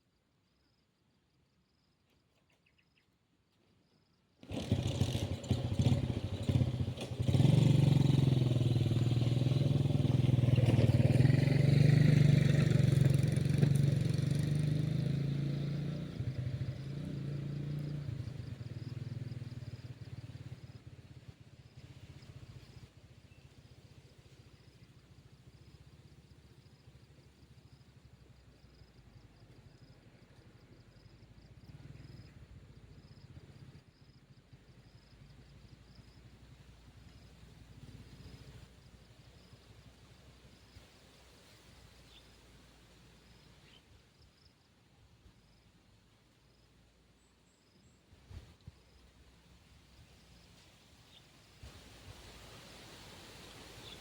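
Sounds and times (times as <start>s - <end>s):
engine starting and running: 4.4s - 19.3s.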